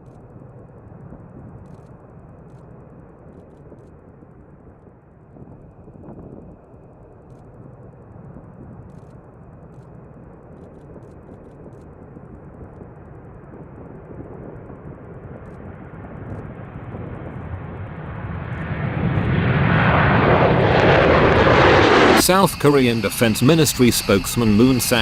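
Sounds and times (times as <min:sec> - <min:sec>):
jet aircraft engine rushing: 0:12.4 - 0:25.0.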